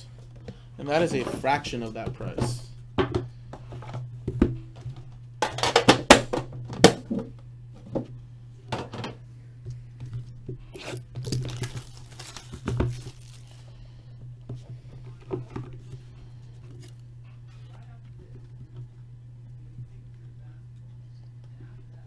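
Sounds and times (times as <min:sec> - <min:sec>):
plastic wrapping tearing: 0:10.8 - 0:13.7.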